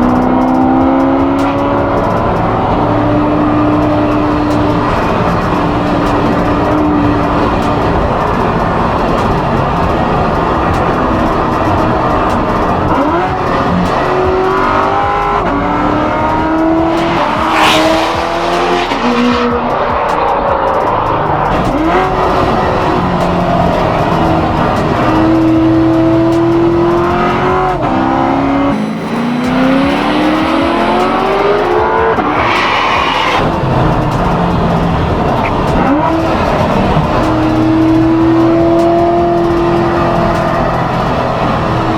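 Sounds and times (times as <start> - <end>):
sports car engine accelerating hard: 0.0 - 41.9.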